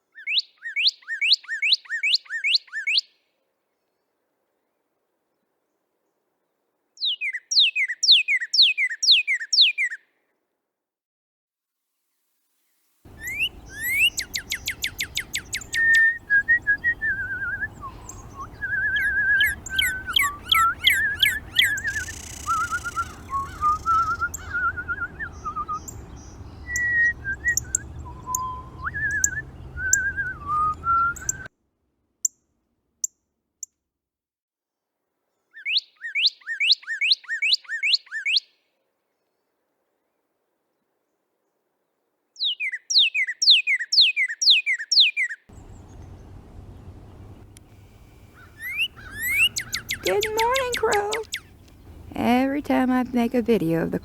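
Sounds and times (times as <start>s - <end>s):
birds chirping: 13.1s - 31.5s, 45.5s - 54.0s
downslurred whistled bird notes: 13.1s - 31.5s, 42.4s - 54.0s.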